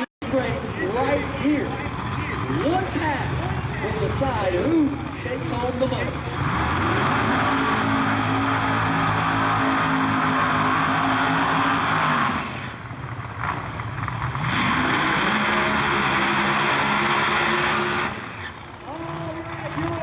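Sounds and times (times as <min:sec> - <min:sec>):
racing car engine at high revs: 0:00.0 - 0:20.0.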